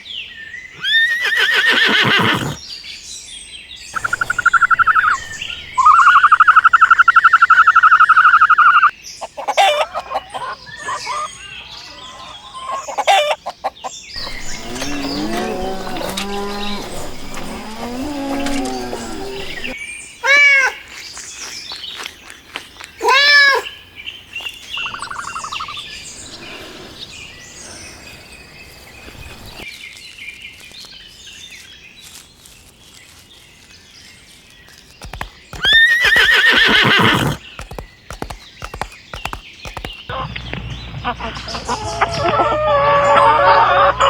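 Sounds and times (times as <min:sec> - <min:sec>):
bird chirping: 0:00.0 - 0:20.2, 0:23.9 - 0:29.7, 0:35.0 - 0:44.0
loud farm animal calls: 0:00.8 - 0:02.6, 0:04.0 - 0:20.4, 0:24.8 - 0:29.6, 0:35.1 - 0:44.0.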